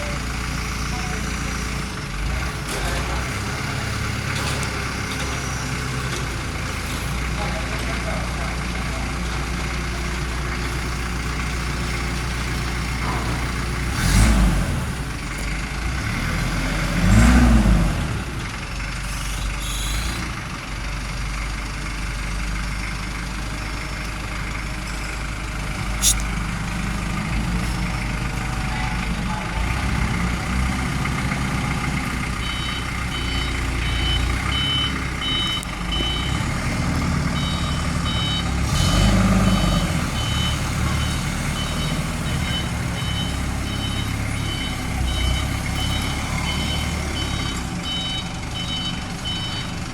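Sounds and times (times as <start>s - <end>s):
forklift diesel engine idling: 0.0s - 49.9s
reversing alarm beeping: 32.4s - 36.5s, 37.2s - 49.8s.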